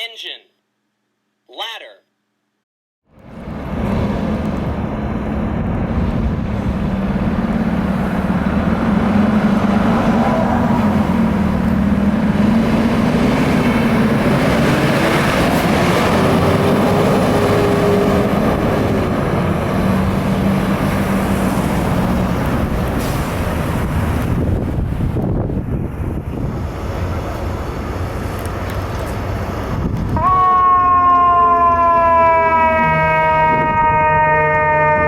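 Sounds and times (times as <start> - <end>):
fire engine driving past: 3.1 - 35.0
siren sweeping up and down: 30.2 - 35.0.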